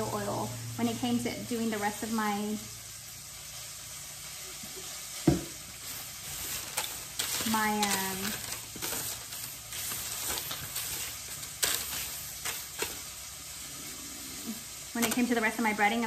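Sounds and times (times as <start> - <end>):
chicken sizzling in oil: 0.0 - 16.0
parchment paper crinkling: 5.6 - 13.3, 14.4 - 15.8.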